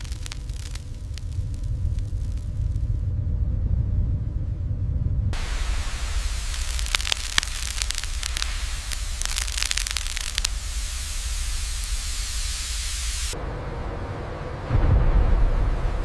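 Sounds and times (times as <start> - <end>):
sharp crackling pops: 0.0 - 2.9, 5.4 - 13.4
molten metal hissing: 0.0 - 3.0, 5.4 - 13.4
low rumble: 0.0 - 16.0.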